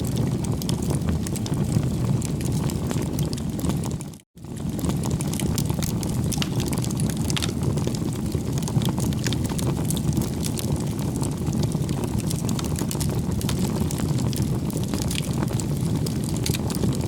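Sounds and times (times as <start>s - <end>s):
campfire flames rumbling: 0.0s - 17.0s
fire crackling and popping: 0.0s - 17.0s.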